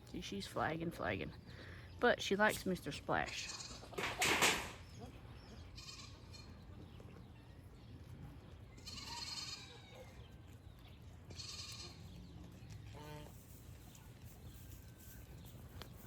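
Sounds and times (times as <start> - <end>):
goats bleating: 5.8 - 6.6, 8.8 - 9.8, 11.3 - 12.1.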